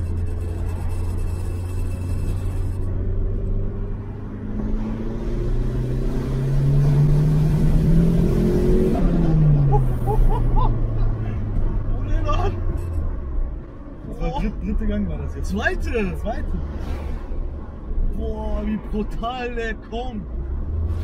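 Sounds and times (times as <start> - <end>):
car engine accelerating: 0.0 - 13.2.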